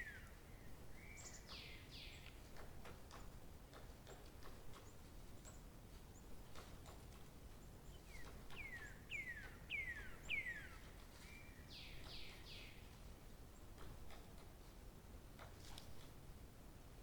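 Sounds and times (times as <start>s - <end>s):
bird singing: 0.0s - 2.3s, 7.8s - 12.8s.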